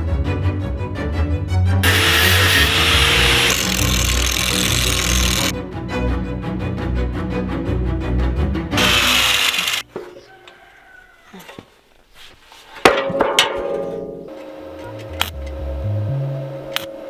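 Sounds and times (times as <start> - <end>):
metal scraping grinding: 1.8 - 5.5, 8.8 - 9.8.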